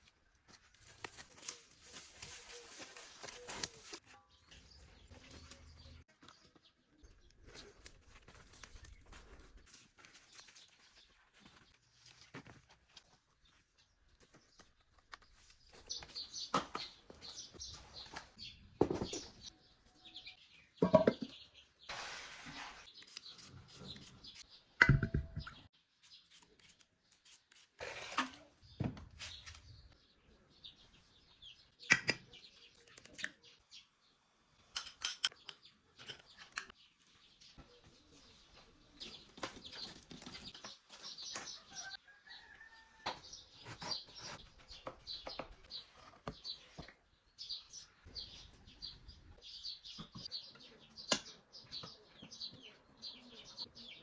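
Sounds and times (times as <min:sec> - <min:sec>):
birds chirping: 0:35.2 - 0:54.0.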